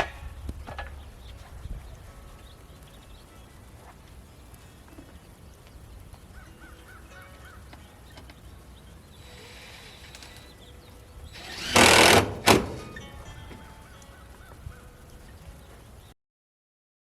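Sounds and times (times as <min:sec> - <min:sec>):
loud rustling bursts: 0:08.6 - 0:13.8.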